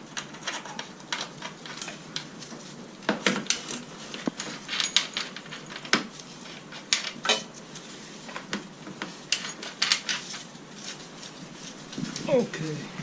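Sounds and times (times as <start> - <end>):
metal tools clinking: 3.2 - 7.6, 9.3 - 10.4.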